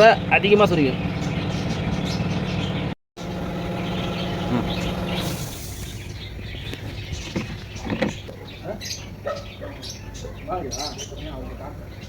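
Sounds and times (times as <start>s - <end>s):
mechanical hum: 1.0s - 7.3s.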